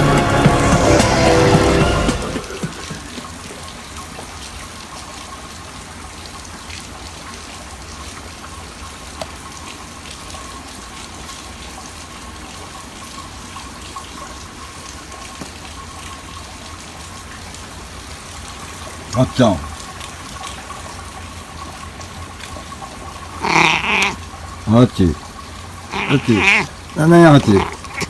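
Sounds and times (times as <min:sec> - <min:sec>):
heavy rain falling: 0:00.0 - 0:28.0
water running and splashing: 0:00.0 - 0:28.0
small drip ticks: 0:06.4 - 0:11.4, 0:13.1 - 0:16.8, 0:19.7 - 0:24.6.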